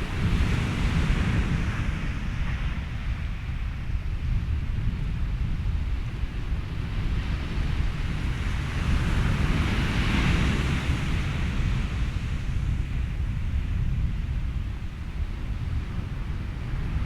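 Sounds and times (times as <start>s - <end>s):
ocean waves: 0.0s - 3.7s, 6.8s - 13.0s
steady low rumble: 0.0s - 7.1s
wind: 0.0s - 17.0s.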